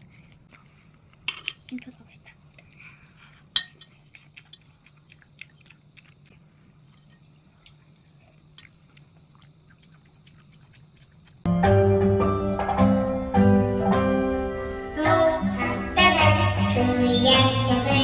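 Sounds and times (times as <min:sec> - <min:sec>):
chewing with wet mouth clicks: 0:02.4 - 0:11.5
music: 0:11.5 - 0:18.0.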